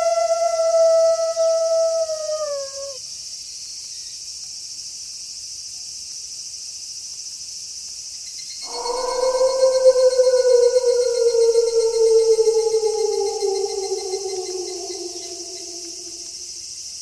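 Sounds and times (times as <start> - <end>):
wolf howling: 0.0 - 3.0, 8.6 - 16.6
night insects chorus: 0.0 - 4.6, 8.2 - 17.0.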